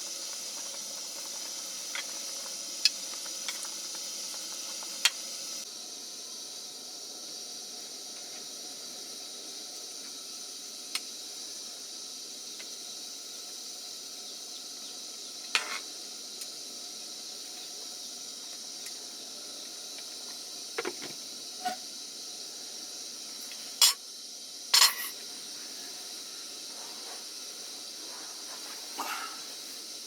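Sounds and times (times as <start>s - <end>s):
steady high hiss: 0.0s - 30.0s.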